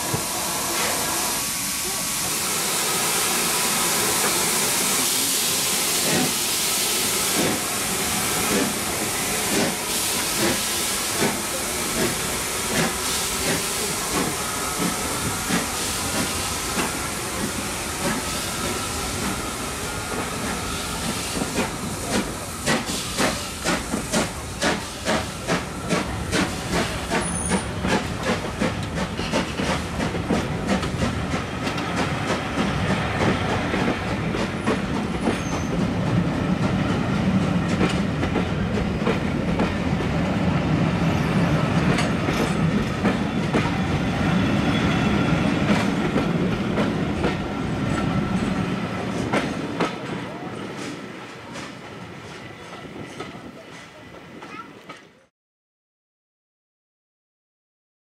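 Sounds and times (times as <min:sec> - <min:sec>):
train wheels clicking over joints: 0:08.4 - 0:19.4, 0:20.1 - 0:40.2, 0:45.4 - 0:55.1.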